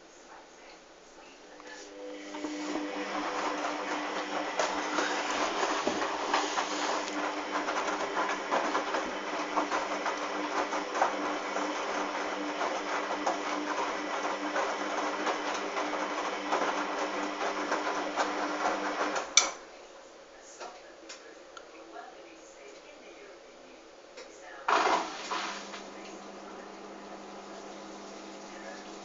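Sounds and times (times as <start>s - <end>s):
washing machine motor hum: 1.6s - 19.5s, 24.7s - 29.0s.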